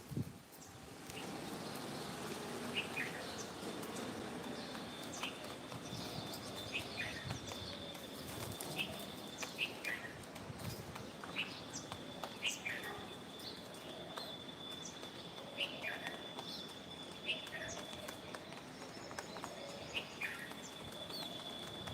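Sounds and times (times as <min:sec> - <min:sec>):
birds chirping: 0:00.6 - 0:21.9.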